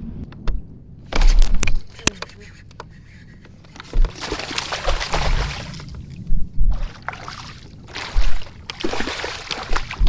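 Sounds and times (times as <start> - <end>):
wind buffeting microphone: 0.0 - 10.0
paddle strokes splashing water: 4.1 - 6.0, 6.8 - 10.0.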